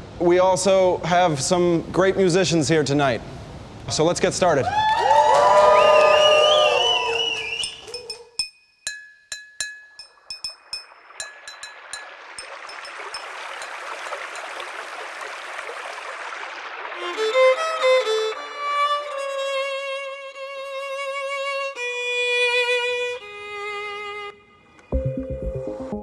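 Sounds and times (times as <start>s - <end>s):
noise hiss: 0.0s - 4.9s
solo violin melody: 17.0s - 25.0s.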